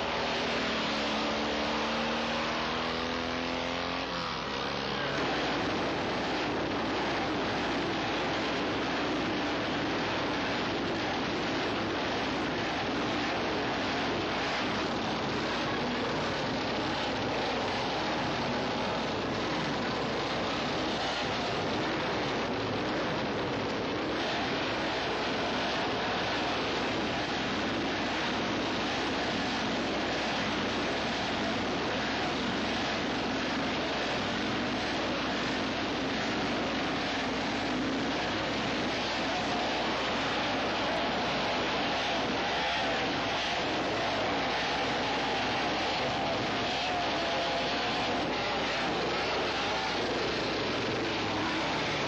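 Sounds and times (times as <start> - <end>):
racing motorcycle engine: 0.0 - 52.0.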